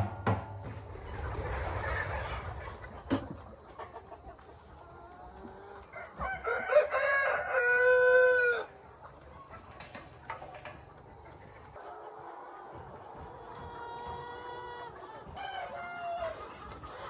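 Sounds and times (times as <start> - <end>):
rooster crowing: 5.9 - 8.7.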